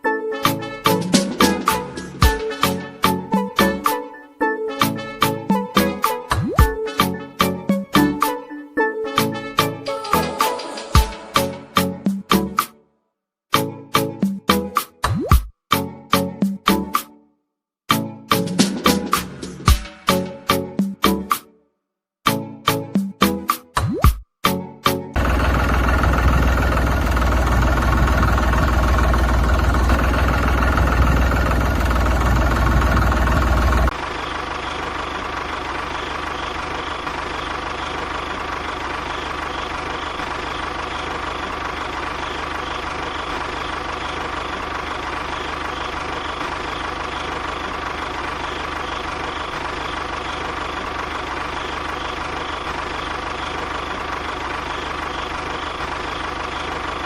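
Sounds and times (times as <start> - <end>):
loud music: 0.4 - 4.1, 9.1 - 12.7
small engine idling: 25.2 - 57.0.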